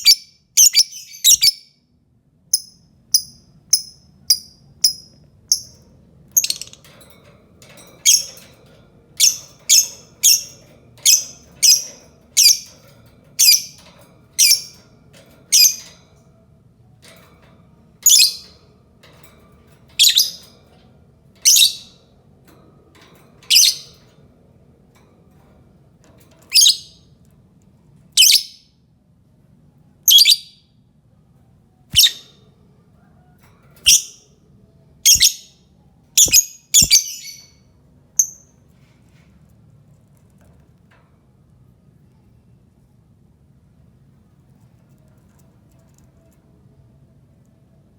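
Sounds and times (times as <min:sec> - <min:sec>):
lovebird high-pitched calls: 0:00.0 - 0:01.7, 0:08.0 - 0:08.3, 0:09.2 - 0:12.7, 0:14.4 - 0:14.7, 0:18.0 - 0:18.4, 0:20.0 - 0:20.4, 0:21.4 - 0:22.0, 0:23.5 - 0:23.9, 0:26.5 - 0:27.0, 0:28.2 - 0:28.6, 0:30.1 - 0:30.6, 0:31.9 - 0:32.3, 0:33.9 - 0:34.2, 0:35.0 - 0:35.6, 0:36.2 - 0:37.6.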